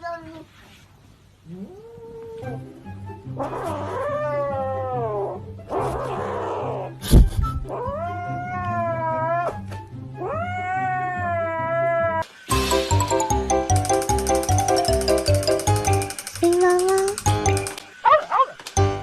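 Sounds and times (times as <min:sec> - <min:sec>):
background music: 0:02.3 - 0:11.6, 0:12.2 - 0:19.0
cat yowling: 0:03.4 - 0:06.9, 0:07.7 - 0:09.6, 0:10.2 - 0:12.2.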